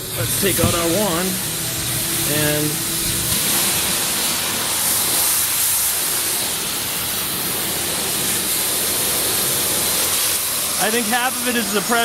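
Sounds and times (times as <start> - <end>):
high-pressure water spray hiss: 0.0 - 12.0.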